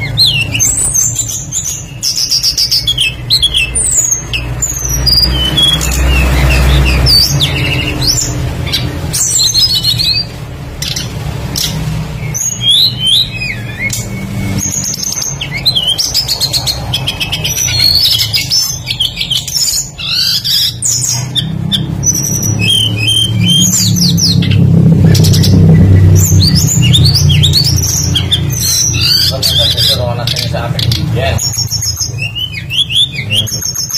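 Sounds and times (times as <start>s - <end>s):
songbird singing: 0.0s - 33.9s
low rumble: 21.8s - 29.1s.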